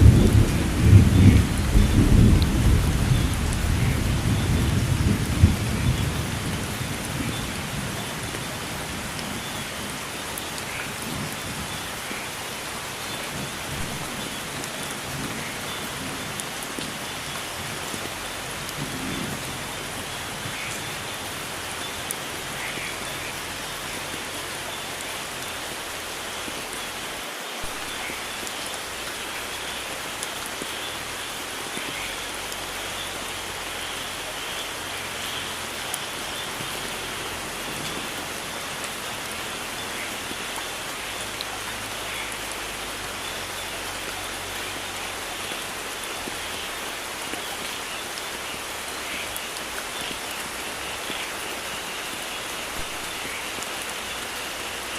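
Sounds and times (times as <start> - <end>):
low thunder rumble: 0.0 - 10.0
heavy rain hissing: 0.0 - 54.9.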